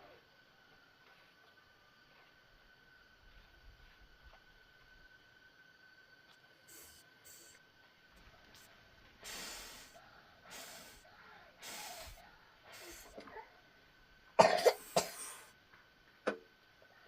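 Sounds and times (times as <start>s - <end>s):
person breathing hissily: 6.6s - 7.6s, 8.5s - 13.6s, 14.8s - 15.6s
person coughing: 14.4s - 15.5s.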